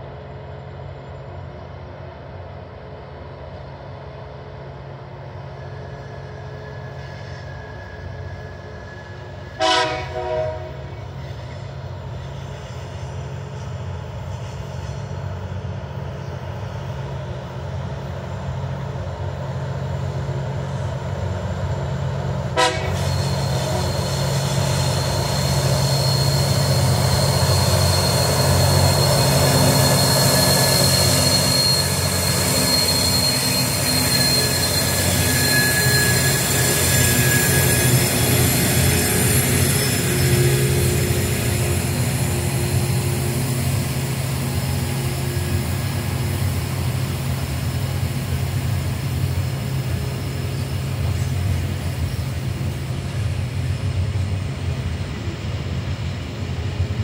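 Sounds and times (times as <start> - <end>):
diesel locomotive engines: 0.0 - 57.0
train horn blasts: 9.5 - 11.0, 22.5 - 24.0.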